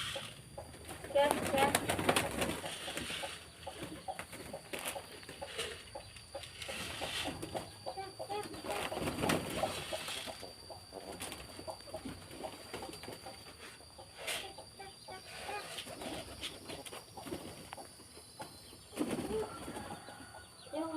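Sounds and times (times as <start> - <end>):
pigeons calling: 0.0 - 20.9
pigeon wing flaps: 0.9 - 3.2, 19.0 - 19.9.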